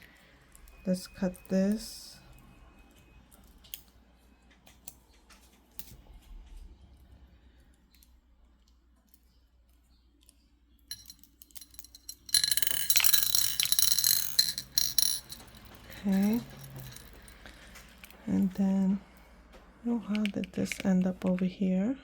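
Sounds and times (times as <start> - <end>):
stone beads clinking together: 10.9 - 18.6.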